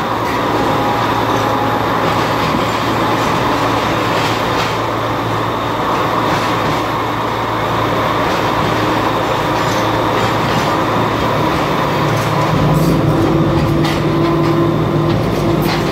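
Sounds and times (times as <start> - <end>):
droning tone: 0.0 - 4.1
train wheels rumbling on track: 0.0 - 15.9.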